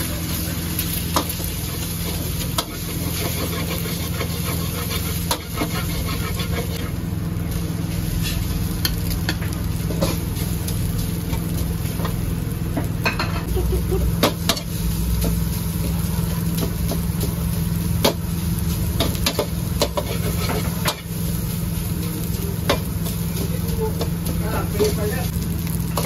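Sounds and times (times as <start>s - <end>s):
constant low hum: 0.0s - 26.0s
food sizzling in hot oil: 0.0s - 26.0s.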